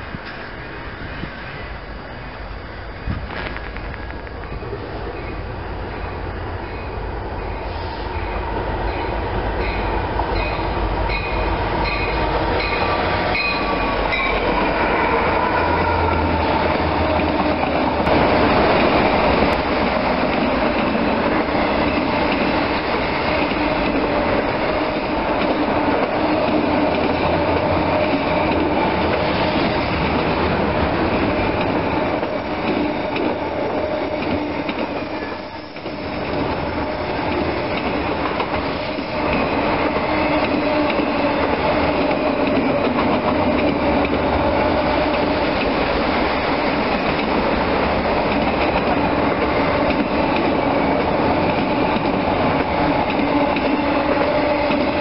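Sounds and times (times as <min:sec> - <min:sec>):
locomotive bell ringing: 0:08.9 - 0:14.6.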